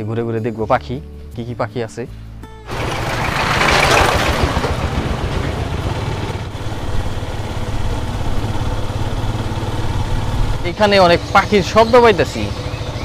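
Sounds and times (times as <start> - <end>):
small engine running: 2.7 - 13.0.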